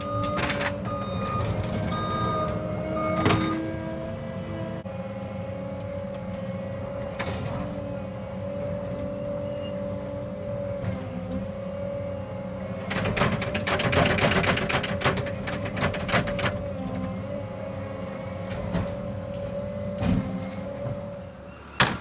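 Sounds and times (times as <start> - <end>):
hydraulic whine: 0.0 - 11.8
excavator diesel engine running: 0.0 - 22.0.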